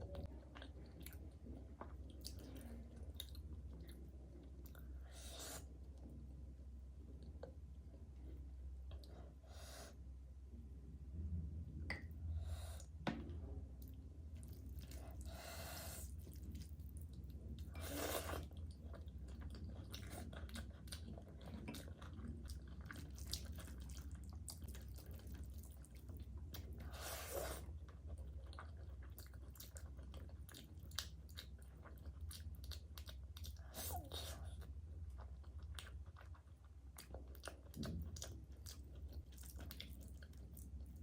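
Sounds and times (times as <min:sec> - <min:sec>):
wet chewing sounds: 0:00.0 - 0:06.1, 0:13.8 - 0:41.0
low hum: 0:00.0 - 0:17.9.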